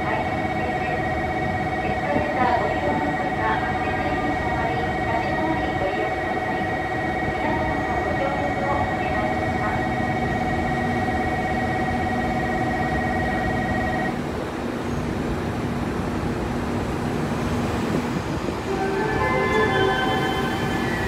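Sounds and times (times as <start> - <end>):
steady tones: 0.0 - 14.2, 18.5 - 21.0
train rumbling: 0.0 - 21.0.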